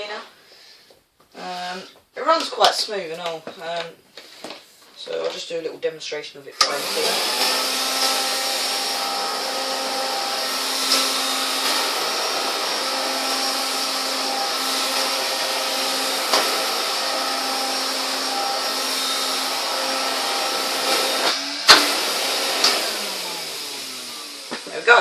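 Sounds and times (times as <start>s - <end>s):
vacuum cleaner motor whine: 6.6s - 25.0s.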